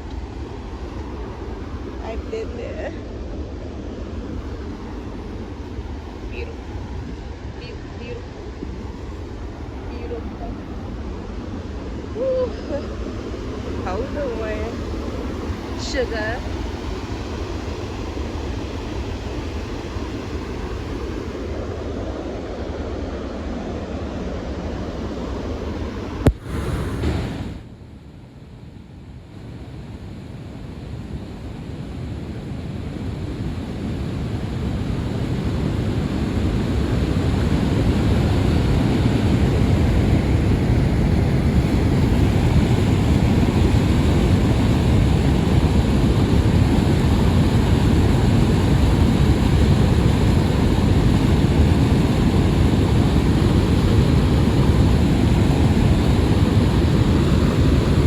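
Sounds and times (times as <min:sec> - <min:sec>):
waterfall roaring: 0:04.1 - 0:21.7.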